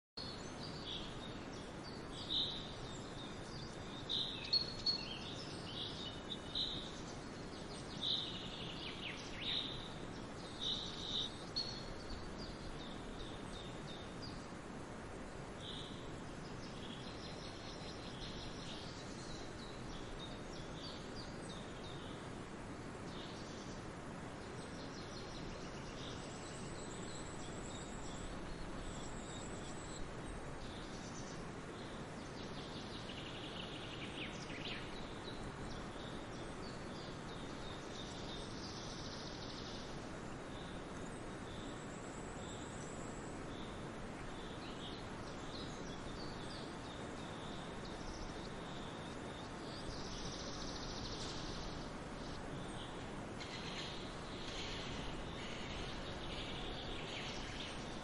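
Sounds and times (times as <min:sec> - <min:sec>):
forest ambience rushing noise: 0:00.2 - 0:58.0
songbirds singing and chirping: 0:00.2 - 0:58.0.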